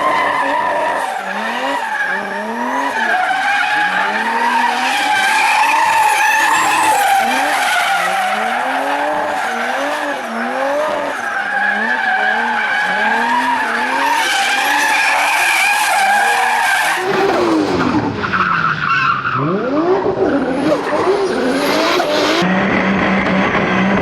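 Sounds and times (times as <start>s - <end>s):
car engine revving: 0.0s - 24.0s
tyres squealing: 3.0s - 10.4s, 20.3s - 22.4s.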